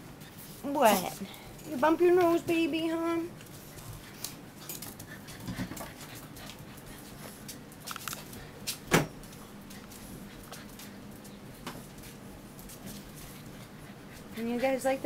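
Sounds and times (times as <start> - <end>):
puppies scuffling and clicking: 0.1 - 15.0
faint puppy noises: 13.1 - 15.0.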